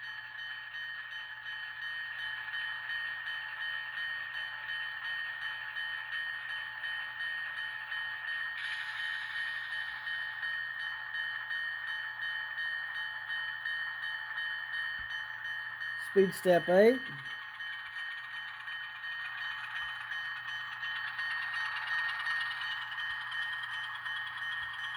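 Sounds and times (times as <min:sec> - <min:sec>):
locomotive bell ringing: 0:14.6 - 0:17.6
diesel engine through small speaker: 0:16.0 - 0:17.2.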